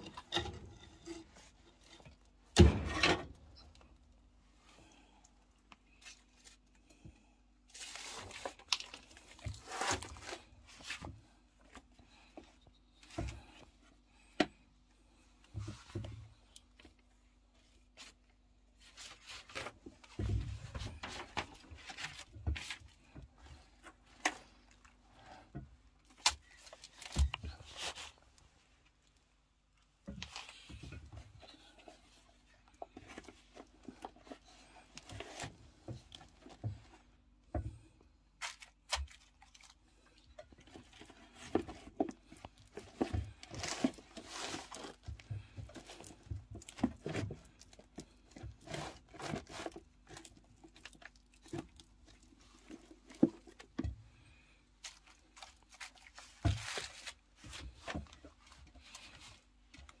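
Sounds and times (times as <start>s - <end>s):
boxes being torn and crumpled: 7.7s - 10.9s.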